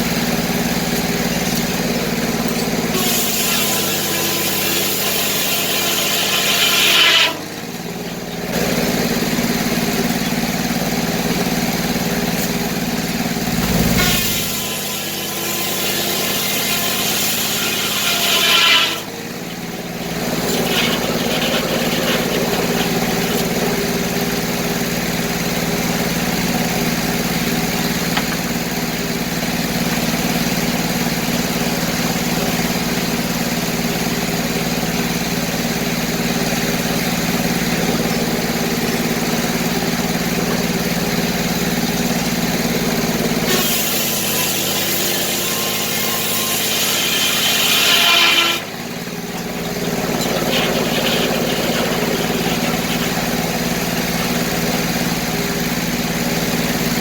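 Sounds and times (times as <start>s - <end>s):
sawmill engine running: 0.0s - 57.0s
saw blade ripping through log: 2.9s - 7.4s, 13.5s - 19.1s, 20.2s - 23.8s, 43.5s - 48.7s, 49.6s - 54.6s.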